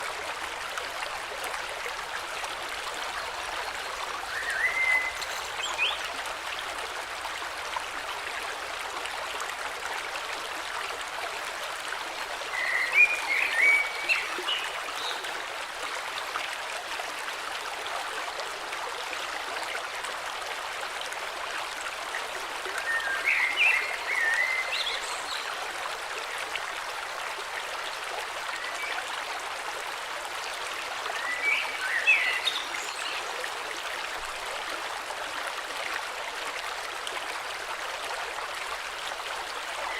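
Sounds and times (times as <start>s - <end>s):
river flowing: 0.0s - 39.9s
songbird warbling: 4.3s - 6.0s.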